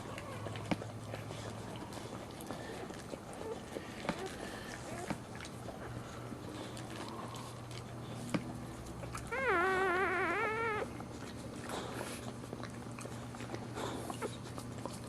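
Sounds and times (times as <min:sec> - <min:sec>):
puppy crying: 0:00.0 - 0:00.8, 0:09.0 - 0:11.0.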